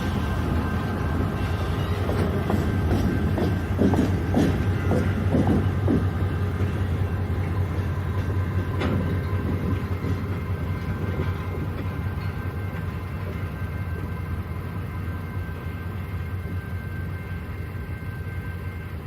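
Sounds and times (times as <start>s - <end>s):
train wheels clacking on rail joints: 0.0s - 14.2s
train rumbling past: 0.0s - 19.0s.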